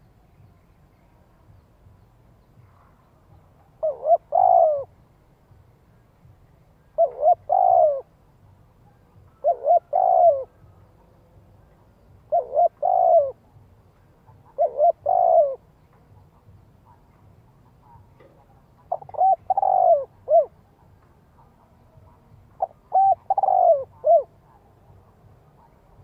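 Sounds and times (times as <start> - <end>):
dove cooing: 3.6 - 5.0, 6.8 - 26.0.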